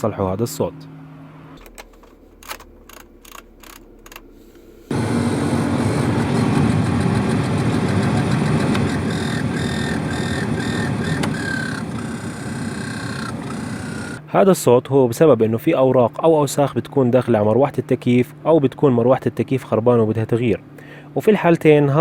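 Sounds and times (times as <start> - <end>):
blower fan rattling whir: 1.1 - 14.3.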